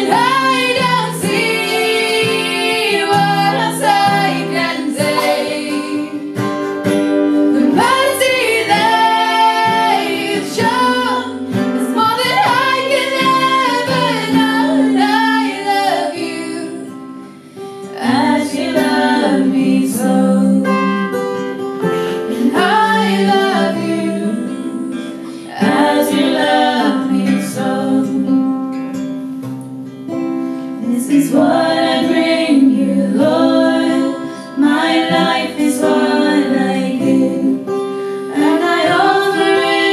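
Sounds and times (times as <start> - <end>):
women singing in harmony: 0.0 - 28.7, 30.8 - 39.9
acoustic guitar: 0.0 - 39.9.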